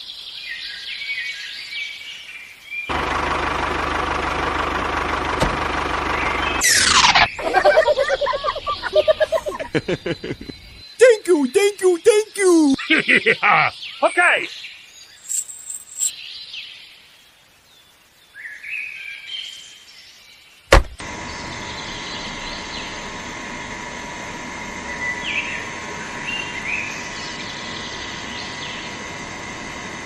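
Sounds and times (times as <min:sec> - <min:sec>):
birds chirping: 0:06.1 - 0:16.1, 0:24.8 - 0:29.5
water pump whining: 0:20.8 - 0:30.0.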